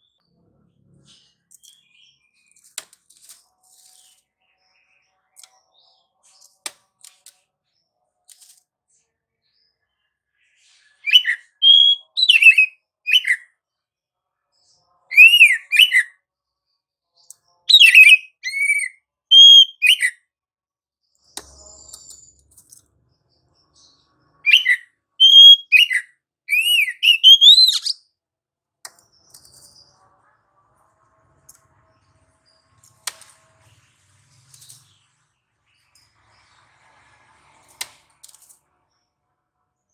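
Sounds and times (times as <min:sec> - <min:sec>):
bird singing whistled phrases: 0:11.0 - 0:13.4, 0:15.1 - 0:16.1, 0:17.7 - 0:20.2, 0:24.4 - 0:28.0.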